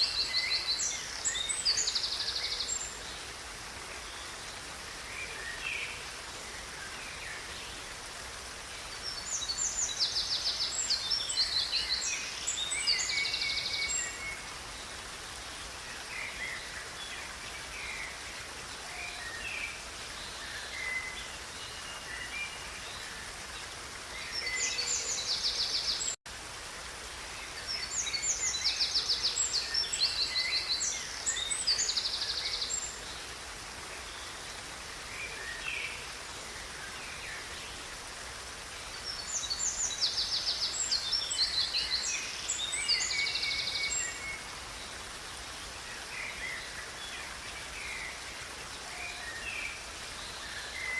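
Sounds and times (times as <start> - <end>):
birds singing: 0.0 - 3.2, 8.9 - 15.1, 15.8 - 26.2, 38.9 - 50.9
river running: 0.0 - 50.9.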